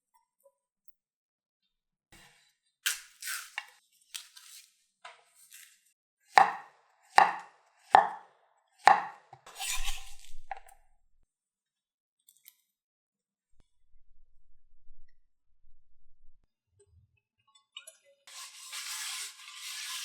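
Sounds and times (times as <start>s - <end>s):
knife chopping on cutting board: 6.4s - 8.2s, 8.9s - 10.7s
knife blade scraping board: 8.9s - 10.8s, 18.3s - 20.0s.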